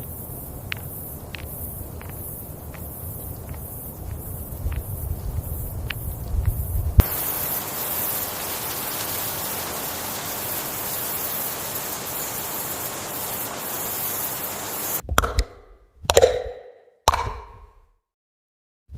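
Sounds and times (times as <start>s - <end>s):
steady hiss: 0.0s - 15.0s
faint clicks: 0.1s - 7.1s.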